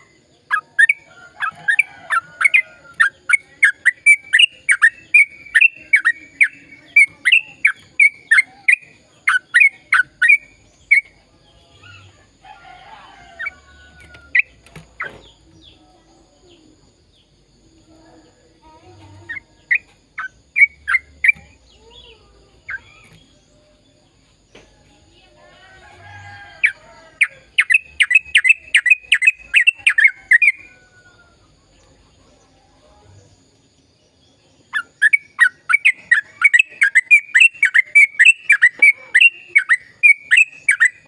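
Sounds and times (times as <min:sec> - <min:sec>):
bird chirping rapidly: 0:00.0 - 0:11.2, 0:19.2 - 0:23.4, 0:26.6 - 0:30.7, 0:34.6 - 0:41.0
soft bird calls: 0:34.6 - 0:41.0.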